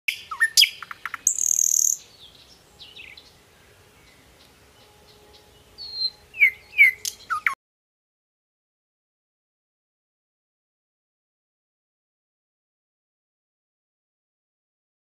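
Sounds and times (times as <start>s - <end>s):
birds chirping and whistling: 0.1s - 7.6s
down-slurred bird calls: 0.1s - 7.6s.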